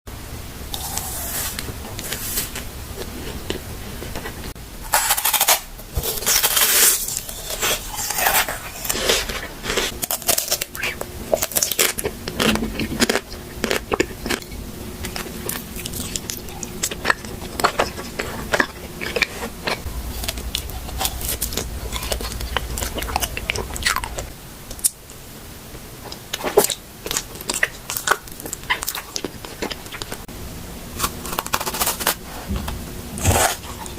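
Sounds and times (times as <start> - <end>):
person chewing crunchy food: 0.7 - 25.0, 26.0 - 30.3, 31.0 - 33.9.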